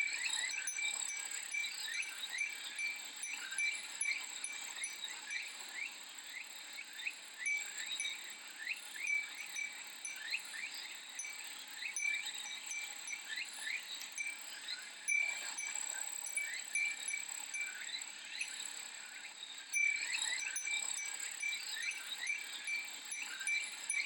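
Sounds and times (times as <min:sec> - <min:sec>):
wind chime tinkling: 0:00.0 - 0:05.9, 0:07.4 - 0:24.0.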